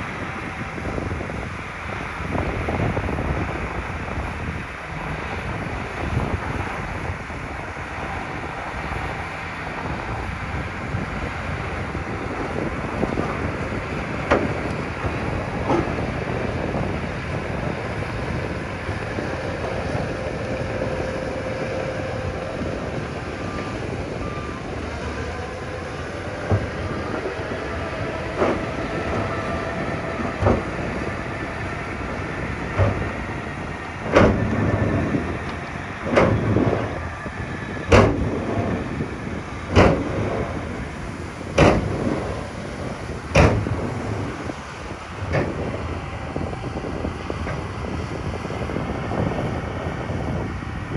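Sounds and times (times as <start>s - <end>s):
heavy earthmoving machinery running: 0.0s - 50.9s
sharp loud knocks: 37.9s - 38.4s, 39.7s - 40.3s, 41.6s - 42.1s, 43.3s - 44.0s.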